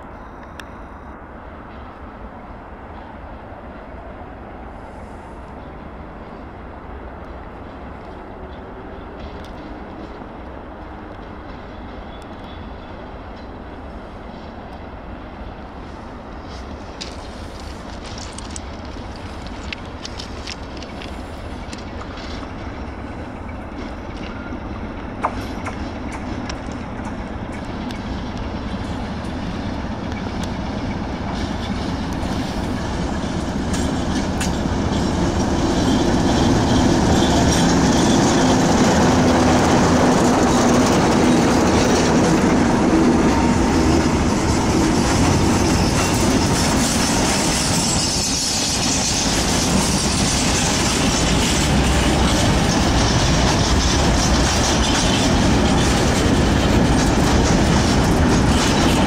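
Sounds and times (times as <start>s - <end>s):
diesel locomotive engine drone: 0.0s - 59.0s
train wheels clattering: 16.3s - 59.0s
high-pitched wheel squeal: 45.3s - 51.6s.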